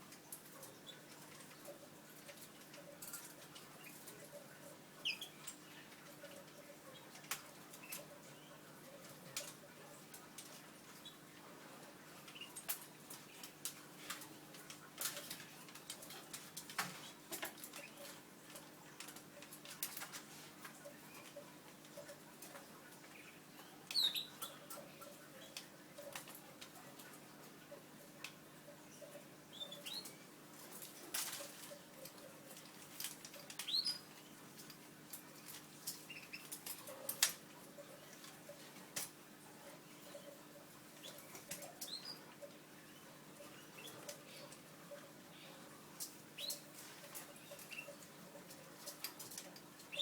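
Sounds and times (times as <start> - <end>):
canaries moving in a cage: 0.0 - 50.0
faint high bird peeps: 5.0 - 5.9, 23.2 - 24.8, 28.9 - 30.3, 33.6 - 34.1.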